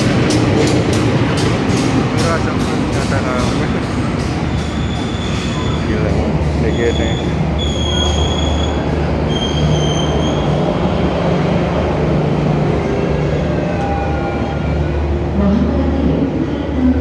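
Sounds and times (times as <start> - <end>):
train rumbling past: 0.0 - 17.0
train wheels squealing: 4.6 - 5.9, 6.6 - 10.7.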